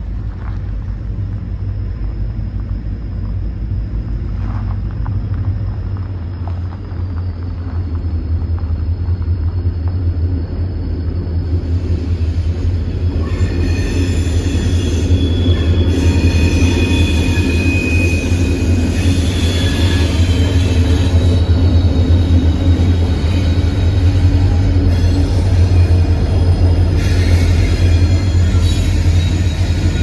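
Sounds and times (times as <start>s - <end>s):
train rolling with low rumble: 0.0s - 30.0s
steel wheel squeal: 11.6s - 30.0s.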